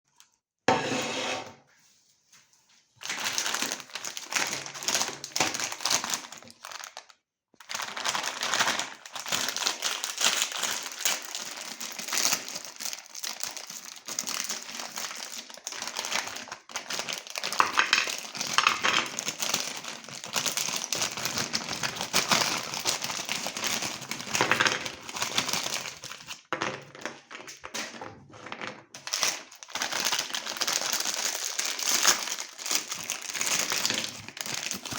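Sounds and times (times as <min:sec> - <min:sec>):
cookies crunching in a grinder: 0:03.0 - 0:34.9.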